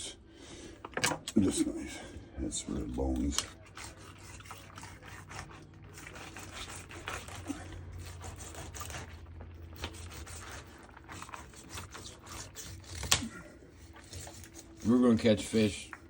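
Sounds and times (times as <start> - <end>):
knife scraping fish bones: 3.0 - 15.0.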